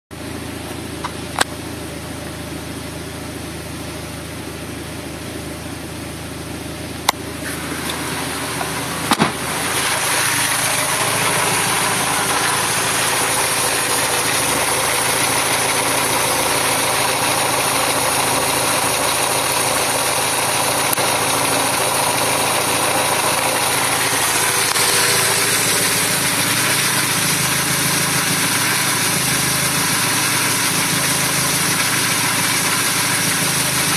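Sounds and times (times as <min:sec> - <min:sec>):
car engine idling: 0:00.2 - 0:33.9.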